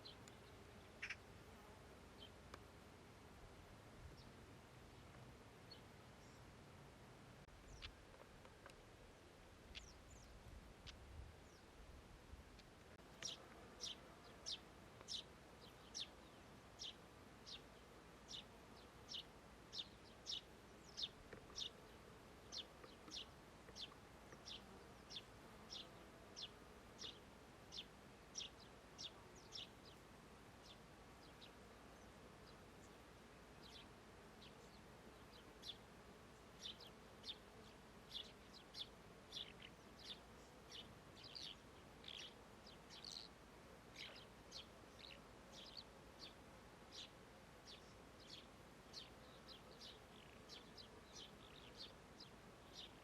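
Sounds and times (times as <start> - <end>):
small bird chirping: 0.0 - 1.2, 7.6 - 8.0, 9.7 - 11.7, 13.2 - 17.6, 38.1 - 43.4, 44.0 - 47.1
faint meadow background: 0.0 - 53.0.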